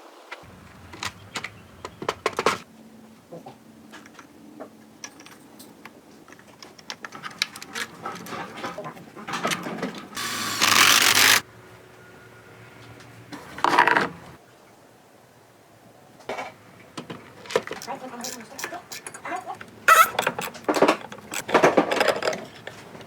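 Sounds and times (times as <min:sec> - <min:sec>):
loud rushing hiss: 0:10.2 - 0:11.4.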